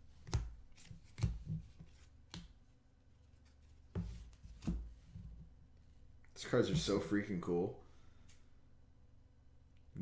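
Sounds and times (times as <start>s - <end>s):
trading cards being handled: 0.2s - 2.6s.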